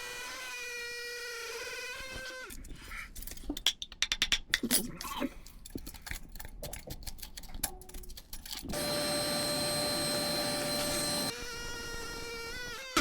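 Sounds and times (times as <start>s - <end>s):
power tool motor running: 8.7s - 13.0s.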